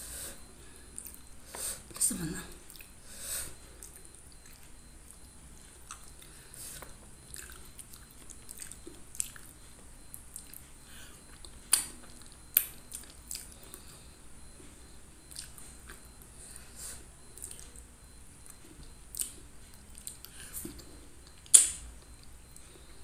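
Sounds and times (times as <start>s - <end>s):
person chewing fish: 2.6s - 3.0s, 3.7s - 14.0s, 15.2s - 16.6s, 17.3s - 17.8s, 18.4s - 22.7s.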